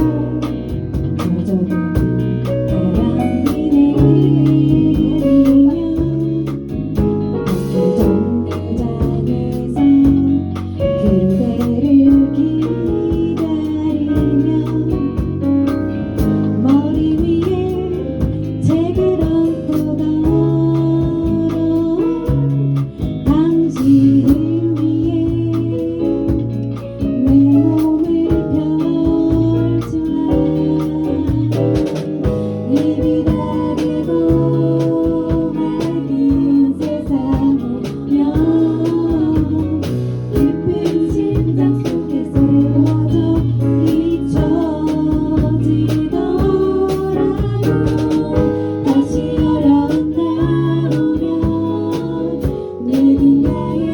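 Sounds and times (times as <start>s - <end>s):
small group singing in harmony: 0.0s - 15.2s, 27.2s - 53.9s
rhythmic strumming accompaniment: 0.0s - 53.9s.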